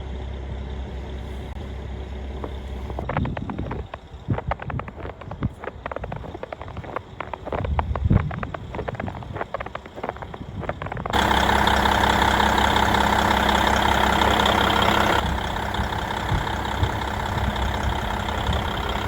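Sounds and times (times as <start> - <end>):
diesel railcar engine running: 0.0 - 19.0.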